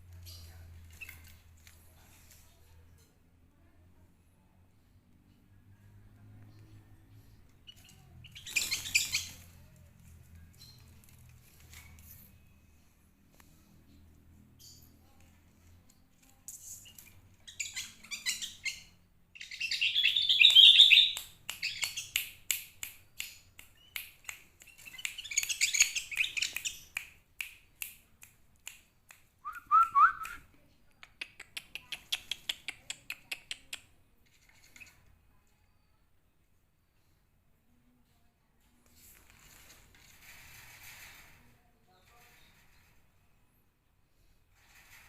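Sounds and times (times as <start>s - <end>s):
bird chirping and chattering: 7.6s - 9.5s, 16.5s - 22.2s, 24.6s - 27.0s.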